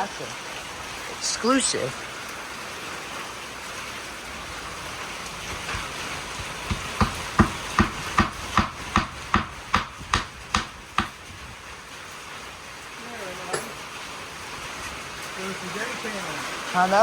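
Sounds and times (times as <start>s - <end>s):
rain falling: 0.0s - 17.0s
evenly spaced knocks: 5.4s - 11.4s.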